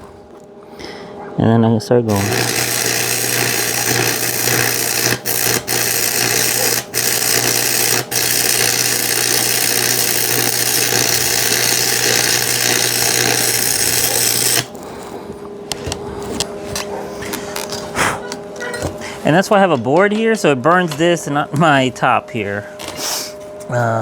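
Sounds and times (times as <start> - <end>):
low electrical buzz: 0.0 - 24.0
welding arc crackling and hissing: 2.1 - 15.1.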